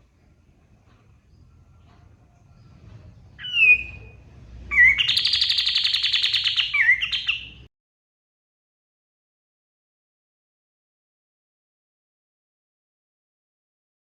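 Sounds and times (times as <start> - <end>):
songbird singing: 0.0 - 7.7.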